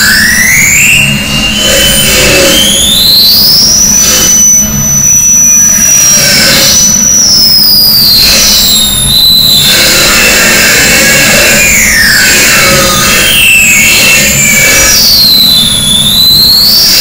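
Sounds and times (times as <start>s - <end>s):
distorted noise music: 0.0s - 17.0s
high squealing tones: 0.0s - 17.0s.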